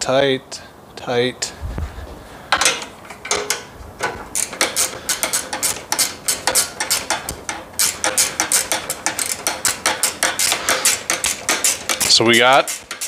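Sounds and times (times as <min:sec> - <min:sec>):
socket ratchet clicking: 0:04.3 - 0:13.0.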